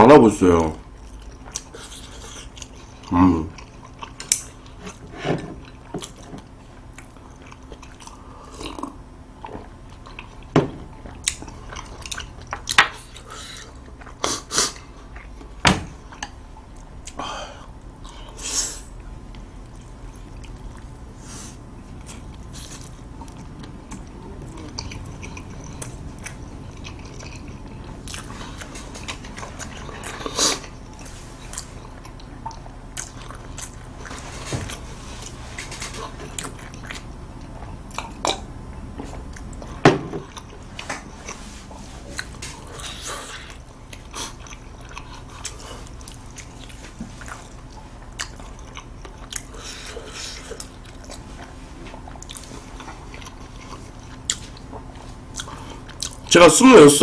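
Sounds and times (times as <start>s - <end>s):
close chewing with wet smacks: 0.9s - 21.1s, 21.9s - 56.4s.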